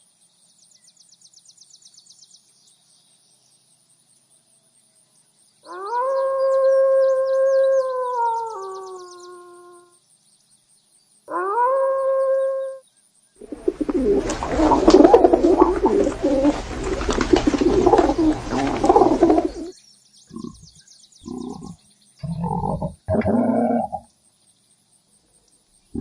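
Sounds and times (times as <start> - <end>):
rising animal call: 5.7 - 9.9, 11.3 - 12.8, 13.4 - 19.7, 20.3 - 24.1
birds cooing and warbling: 13.4 - 19.7, 20.3 - 24.0
short low grunting calls: 13.4 - 19.7, 20.3 - 24.1.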